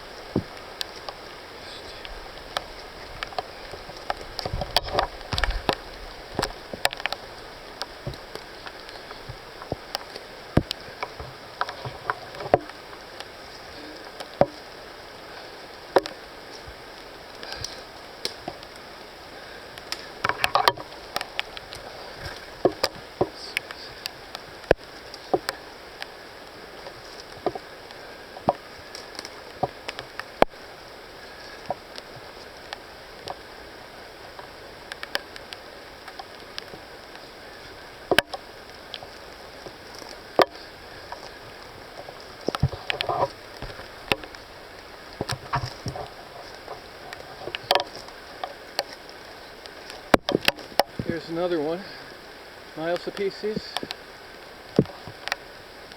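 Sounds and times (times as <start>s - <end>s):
footsteps in muddy undergrowth: 0.0s - 12.3s
rainforest background hiss: 0.0s - 55.9s
twigs snapping: 0.2s - 14.8s, 15.8s - 19.0s, 19.6s - 33.5s, 34.3s - 51.1s.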